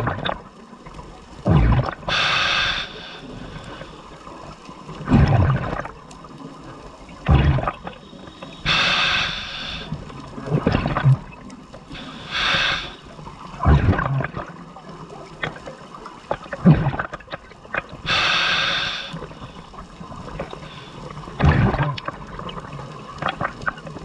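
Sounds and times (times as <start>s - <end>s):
exhaled bubbles rumbling: 0.0s - 24.0s
regulator air hiss: 2.1s - 4.0s, 8.1s - 10.0s, 11.9s - 13.1s, 18.1s - 19.7s.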